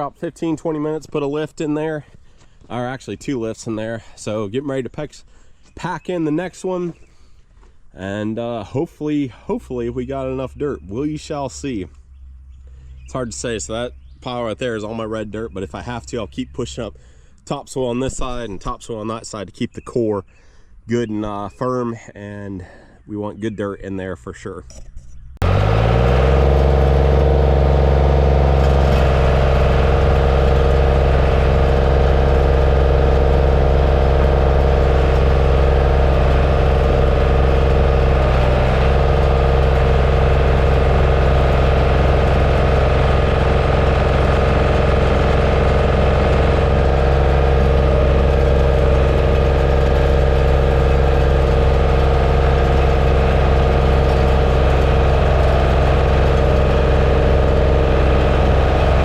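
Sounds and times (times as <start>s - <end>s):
bulldozer diesel engine running: 25.4s - 59.0s.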